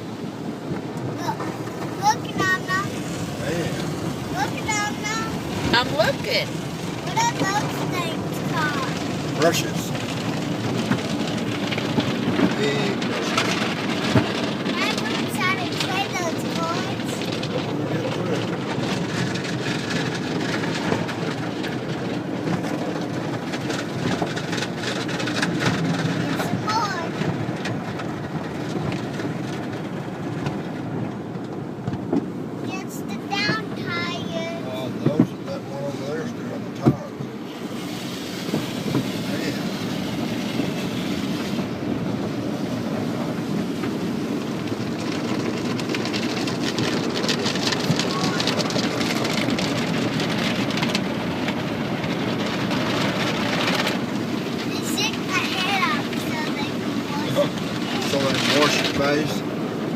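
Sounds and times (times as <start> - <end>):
car wash brushes and spray: 0.0 - 59.9.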